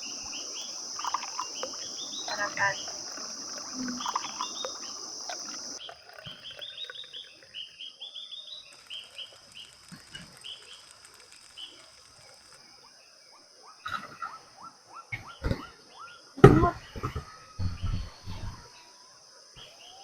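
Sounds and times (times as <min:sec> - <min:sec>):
high-pitched insect drone: 0:00.0 - 0:05.8
small birds chirping: 0:00.0 - 0:13.9.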